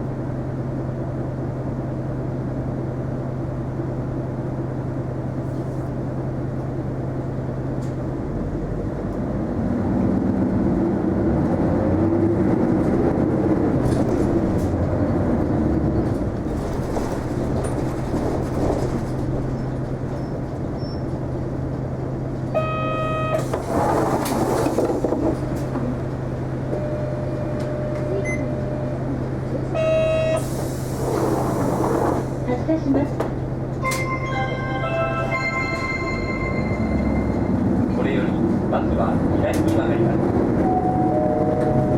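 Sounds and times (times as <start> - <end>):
bus engine hum: 0.0 - 41.9
multi-tone chime: 33.8 - 37.6
steady electronic tone: 33.8 - 37.8.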